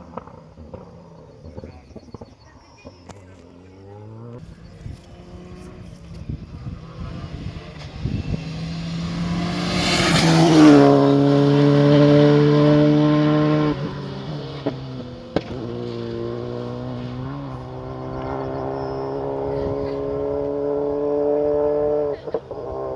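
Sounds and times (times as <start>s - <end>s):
rally car engine passing: 0.0s - 22.9s
tyre noise: 0.0s - 22.9s.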